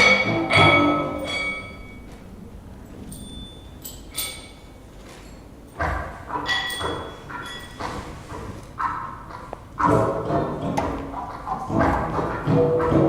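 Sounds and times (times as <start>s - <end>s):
struck ringing percussion tones: 0.0s - 2.2s, 5.7s - 13.0s.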